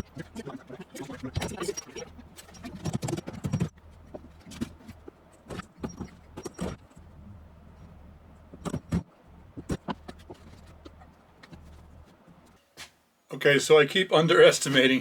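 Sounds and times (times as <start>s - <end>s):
knocks and clatters: 0.0s - 7.2s, 7.8s - 12.6s
low steady hum: 0.0s - 15.0s.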